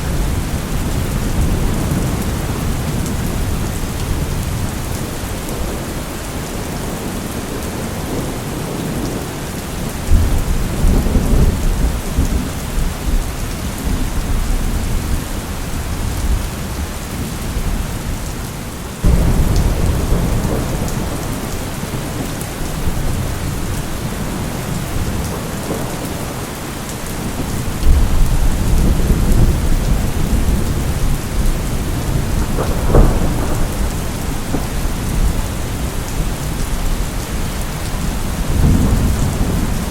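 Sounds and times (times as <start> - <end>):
thunder rumbling: 0.0 - 7.1, 19.0 - 39.9
heavy rain hissing: 0.0 - 39.9
sharp thunder crack: 19.0 - 22.3, 31.4 - 35.4.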